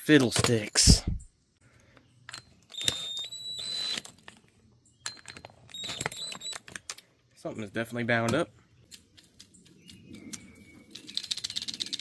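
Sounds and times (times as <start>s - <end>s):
metal tools clicking and rattling: 5.0s - 7.0s.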